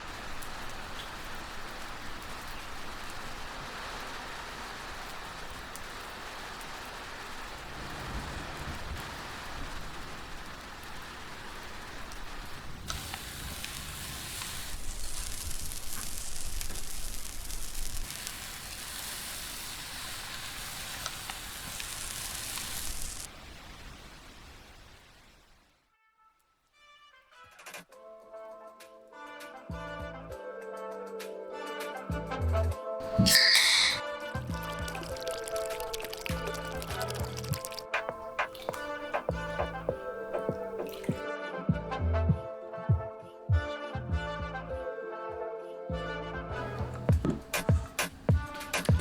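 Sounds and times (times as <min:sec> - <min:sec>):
steady rain falling: 0:00.0 - 0:25.8, 0:33.0 - 0:41.2, 0:46.6 - 0:49.0.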